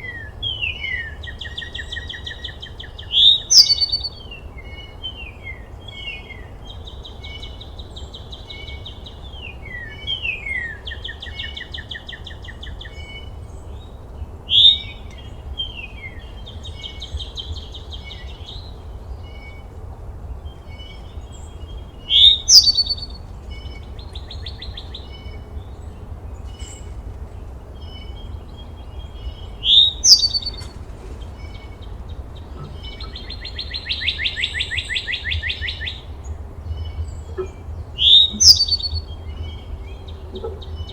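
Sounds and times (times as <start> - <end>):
songbirds singing: 0.0 - 40.9
steady low rumble: 22.8 - 40.9
sharp rising bird call: 29.6 - 30.7.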